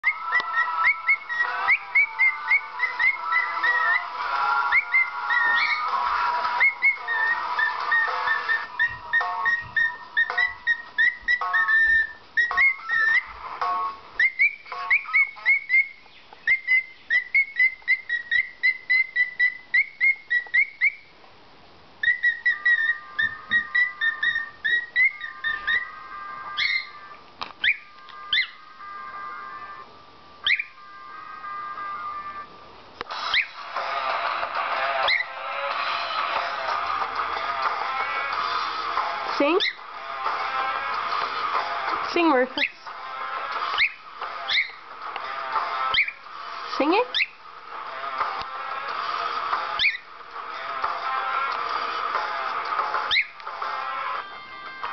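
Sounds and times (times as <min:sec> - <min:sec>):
cockatiel whistled chirps: 0:00.0 - 0:13.4, 0:14.2 - 0:21.1, 0:22.0 - 0:28.6, 0:30.4 - 0:30.8, 0:33.1 - 0:33.9, 0:34.9 - 0:36.6, 0:39.4 - 0:39.9, 0:42.6 - 0:42.9, 0:43.6 - 0:44.9, 0:45.8 - 0:46.3, 0:46.9 - 0:47.4, 0:49.7 - 0:50.1, 0:53.0 - 0:53.4.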